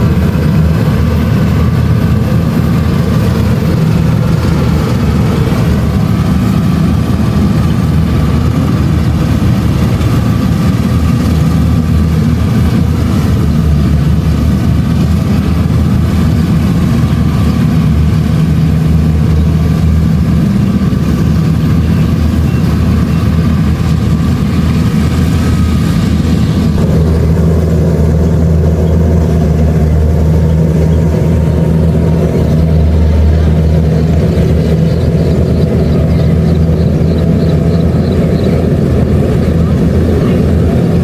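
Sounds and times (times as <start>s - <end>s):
combine harvester engine humming: 0.0s - 41.0s.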